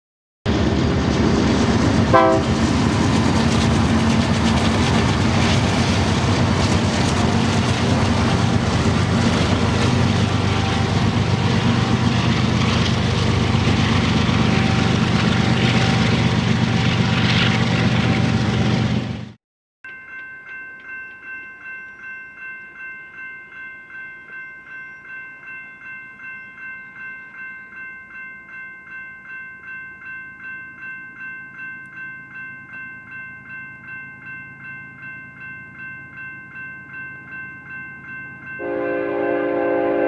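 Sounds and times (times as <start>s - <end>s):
locomotive engine drone: 0.5s - 19.4s
rail cars rumbling: 0.5s - 19.4s, 37.2s - 40.0s.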